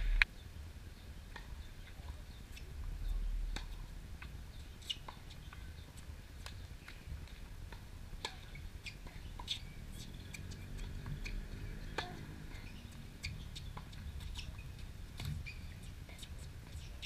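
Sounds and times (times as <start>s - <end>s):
low rumble: 0.0s - 0.2s.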